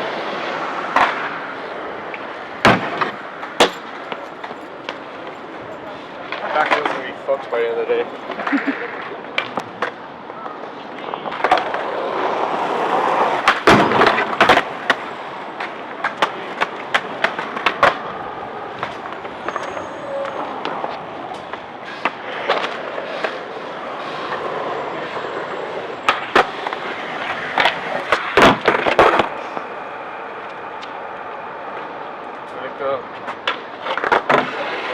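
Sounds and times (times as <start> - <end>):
skateboard wheels rolling: 0.0 - 34.9
skateboard clacks and knocks: 11.2 - 15.0, 26.1 - 29.4, 33.3 - 34.9.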